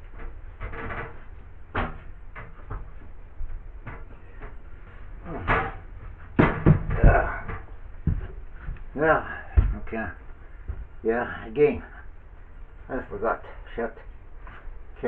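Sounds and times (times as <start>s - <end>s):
hard objects knocking and clunking: 0.0s - 11.0s.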